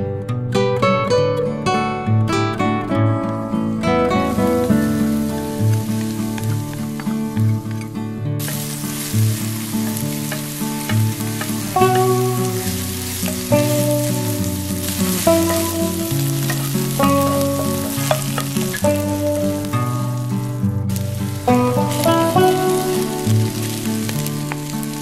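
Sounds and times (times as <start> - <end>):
background music: 0.0 - 25.0
green onions sizzling in oil: 3.6 - 25.0
wooden spatula stirring: 8.4 - 19.1.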